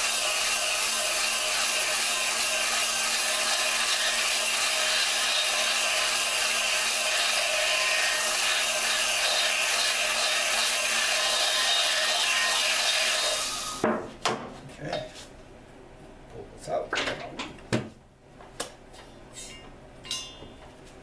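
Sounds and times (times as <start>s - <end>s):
drill motor: 0.0s - 13.8s.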